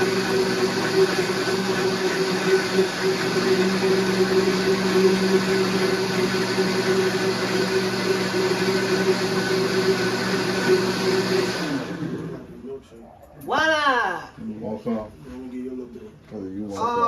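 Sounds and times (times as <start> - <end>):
blender motor running: 0.0 - 12.6.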